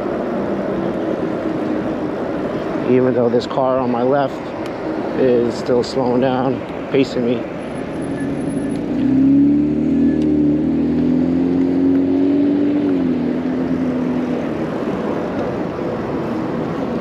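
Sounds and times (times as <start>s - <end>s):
car engine hum: 0.0s - 17.0s
wind and road noise: 0.0s - 17.0s.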